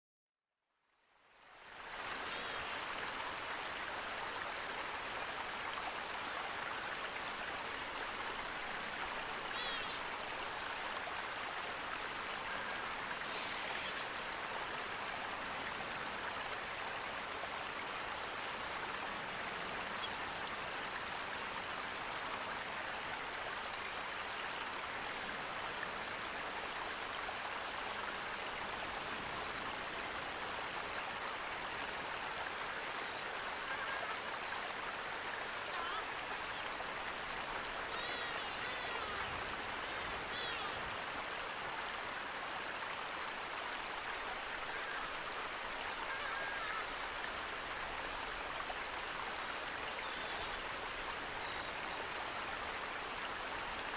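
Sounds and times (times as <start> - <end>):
flowing water rushing: 1.1 - 53.9
faint bird chirps: 9.5 - 10.0.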